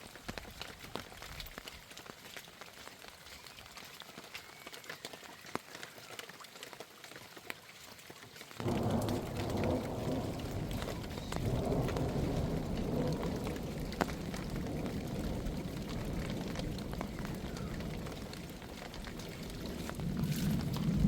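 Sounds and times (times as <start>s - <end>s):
heavy rain falling: 8.6s - 21.0s.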